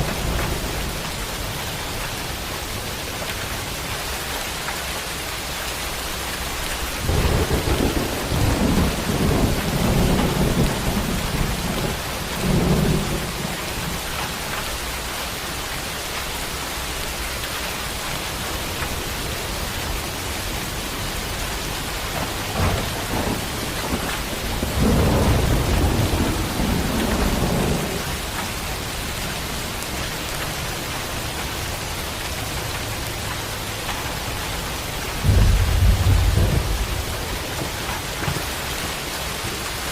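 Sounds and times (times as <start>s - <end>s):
steady rain hissing: 0.0s - 39.9s
thunder rumbling: 6.8s - 14.9s, 18.7s - 30.6s, 33.7s - 39.9s.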